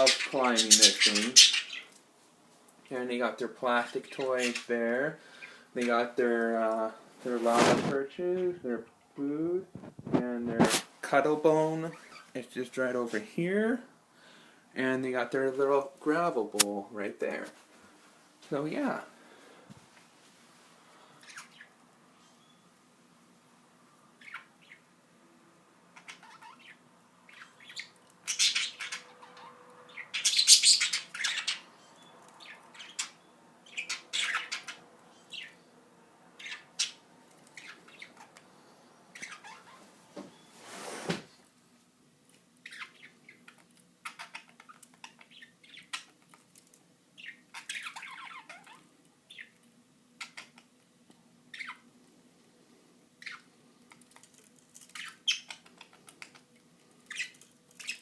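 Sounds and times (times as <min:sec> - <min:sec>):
budgerigars chirping and squawking: 0:00.0 - 0:02.0, 0:03.2 - 0:06.1, 0:21.2 - 0:21.8, 0:24.2 - 0:24.9, 0:25.9 - 0:35.6, 0:36.3 - 0:39.8, 0:42.6 - 0:46.2, 0:47.2 - 0:50.7, 0:51.5 - 0:51.9, 0:53.2 - 0:53.6, 0:54.3 - 0:58.0.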